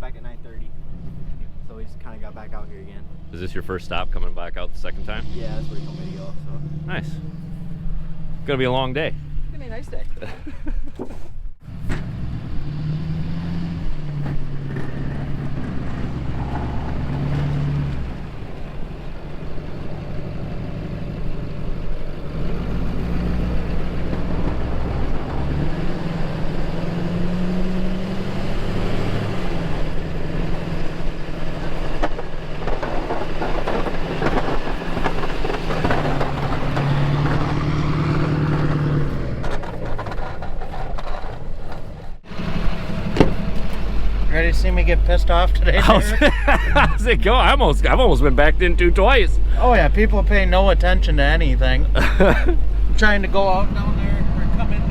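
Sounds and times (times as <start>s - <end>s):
snow plow truck engine running: 11.6s - 54.9s.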